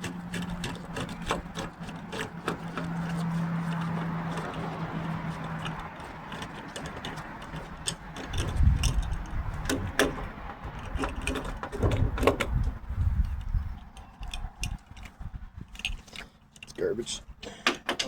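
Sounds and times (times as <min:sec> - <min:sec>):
metallic clicks and rattles: 0:00.0 - 0:16.9
heavy low bumps: 0:07.2 - 0:16.0.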